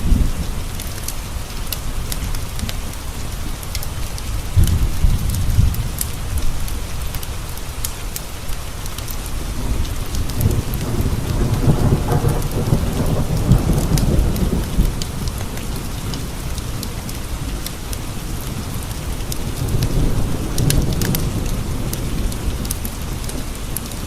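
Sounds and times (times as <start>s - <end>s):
steady rain: 0.0s - 24.0s
low roll of thunder: 4.3s - 7.3s, 9.4s - 24.0s.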